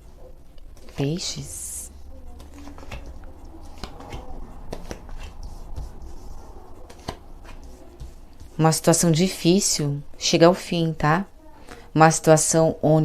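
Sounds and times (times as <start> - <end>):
cards being shuffled: 2.4 - 6.2.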